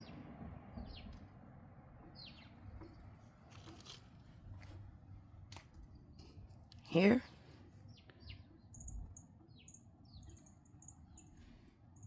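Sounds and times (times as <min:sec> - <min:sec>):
bird chirps: 0:02.0 - 0:03.1, 0:07.8 - 0:12.0.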